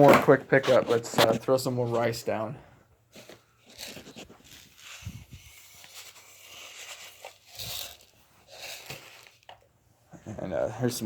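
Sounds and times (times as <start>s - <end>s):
rustling and crinkling container: 3.1s - 9.7s.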